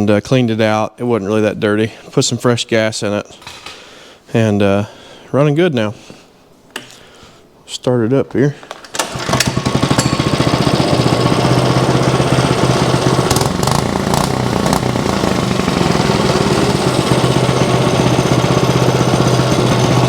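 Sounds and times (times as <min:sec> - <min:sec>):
go-kart engine idling: 0:09.0 - 0:20.0.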